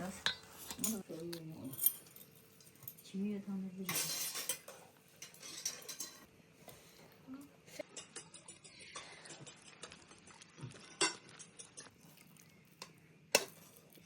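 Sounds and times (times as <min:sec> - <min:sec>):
utensils clinking against dishes: 0:00.2 - 0:03.2, 0:03.8 - 0:06.3, 0:11.0 - 0:11.9.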